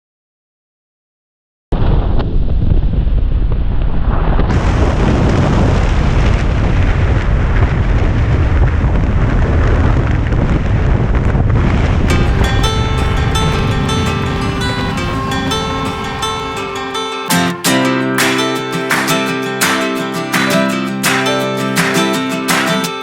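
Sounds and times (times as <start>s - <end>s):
wind buffeting microphone: 2.5s - 17.0s.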